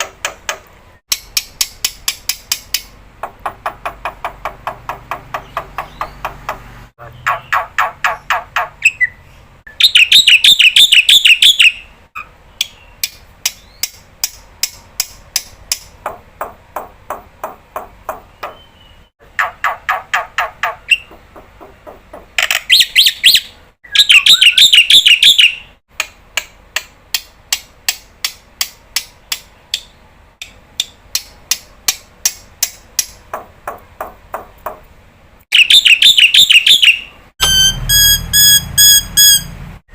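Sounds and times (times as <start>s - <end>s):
harsh bird chattering: 5.1s - 9.2s, 9.8s - 14.0s, 18.4s - 25.6s, 35.5s - 37.1s.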